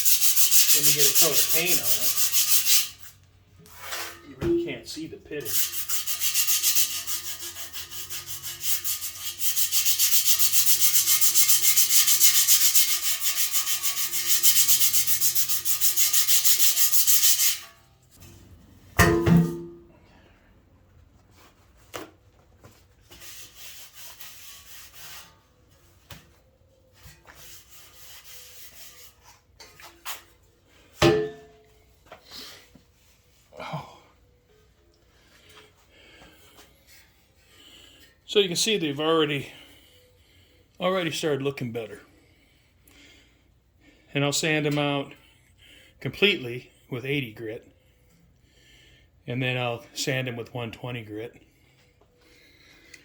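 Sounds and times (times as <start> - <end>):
sandpaper scraping on metal: 0.0 - 3.2, 5.4 - 17.7, 23.1 - 25.4, 27.3 - 29.3.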